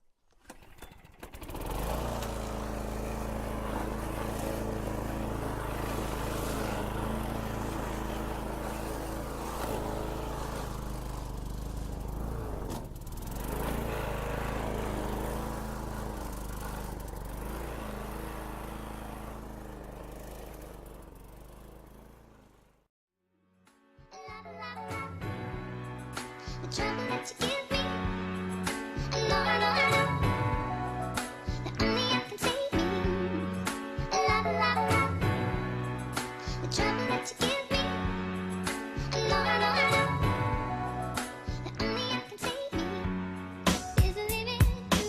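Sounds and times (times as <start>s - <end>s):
lawn mower engine running: 0.3s - 22.9s.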